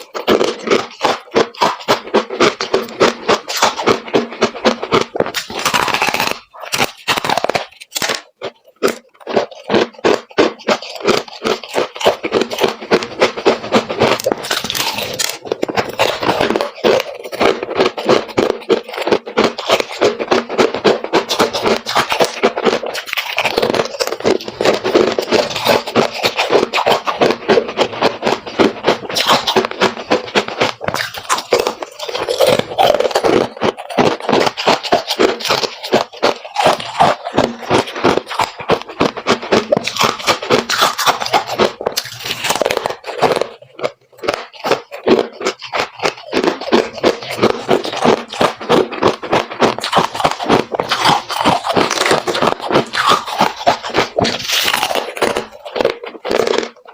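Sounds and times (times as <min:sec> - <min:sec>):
frost crunching and chewing: 0:00.0 - 0:56.9.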